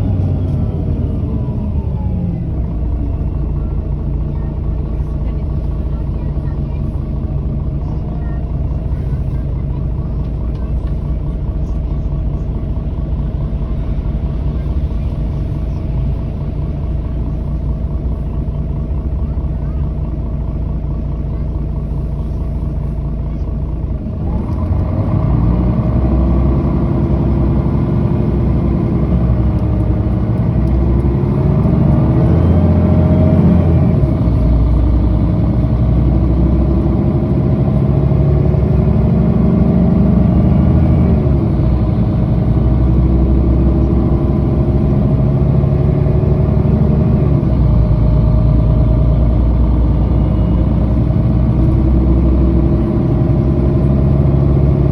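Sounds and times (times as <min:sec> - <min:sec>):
bus diesel engine accelerating: 0:00.0 - 0:54.9.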